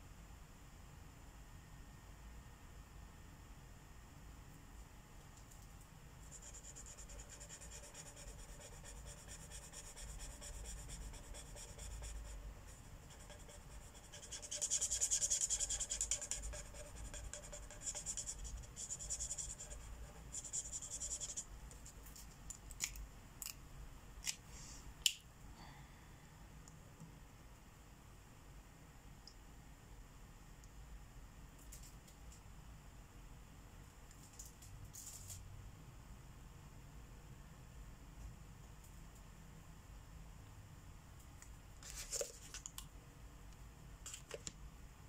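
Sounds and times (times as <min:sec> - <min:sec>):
marker scribbling on paper: 0:06.3 - 0:22.0.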